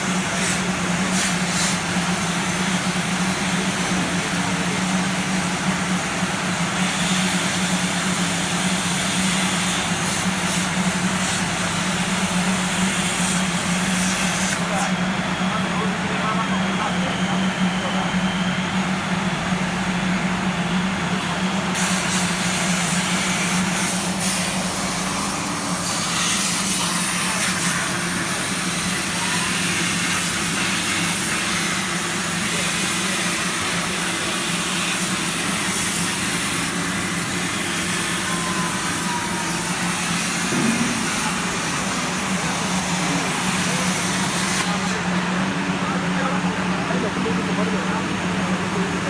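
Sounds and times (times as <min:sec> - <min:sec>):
plasma arc hissing: 0:00.3 - 0:02.6, 0:06.7 - 0:14.9, 0:21.8 - 0:38.2, 0:40.0 - 0:44.8
low machine hum: 0:39.3 - 0:49.0.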